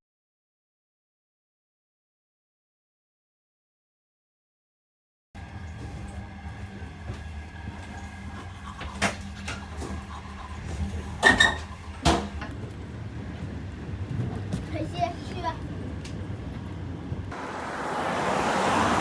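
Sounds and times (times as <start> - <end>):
train knocks and clacks: 5.4 - 17.4
train rumbling: 5.4 - 19.0.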